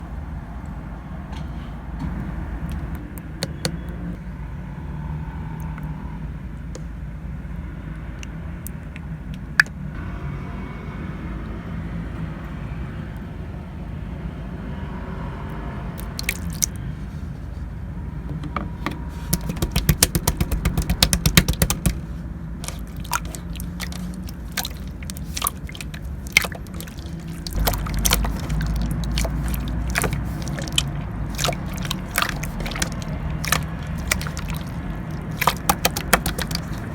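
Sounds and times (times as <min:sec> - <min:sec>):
slime sticky clicks and pops: 0:19.4 - 0:22.0.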